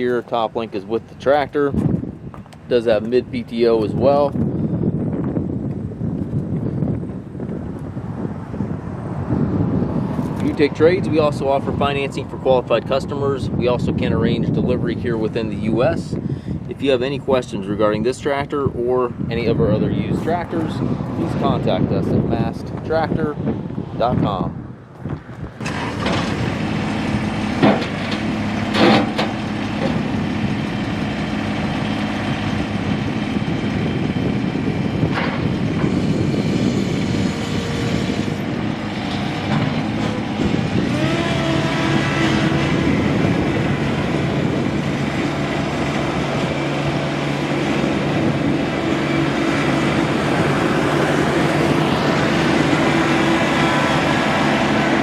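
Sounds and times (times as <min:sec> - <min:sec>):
tractor diesel engine running: 0:25.5 - 0:55.0.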